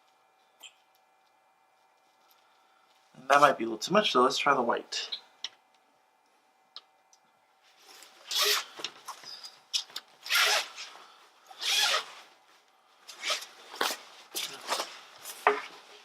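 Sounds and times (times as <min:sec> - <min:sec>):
zipper pulled: 0:08.2 - 0:08.7, 0:10.2 - 0:10.9, 0:11.6 - 0:12.2, 0:13.1 - 0:14.0.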